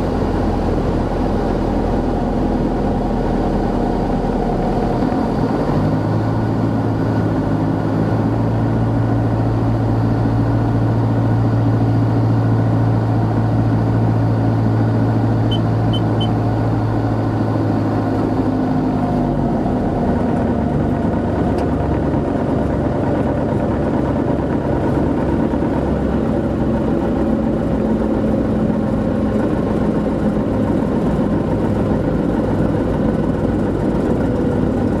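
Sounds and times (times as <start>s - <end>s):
short high beeps: 15.5s - 16.4s.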